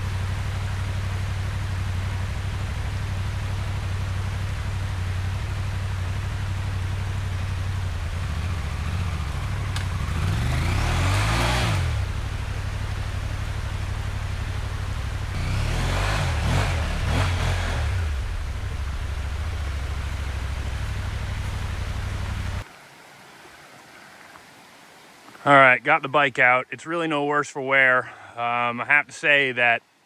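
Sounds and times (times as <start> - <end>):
motorcycle engine revving: 0.0 - 22.6.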